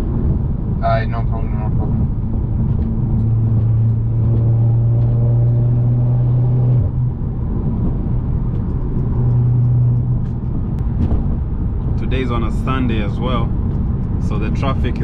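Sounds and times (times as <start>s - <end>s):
car engine droning: 0.0s - 15.0s
road noise: 0.0s - 15.0s.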